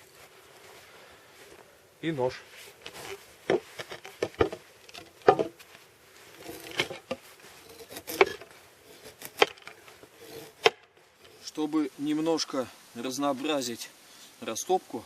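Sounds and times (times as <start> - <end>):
knife scraping wood: 2.8 - 5.6, 6.3 - 11.7.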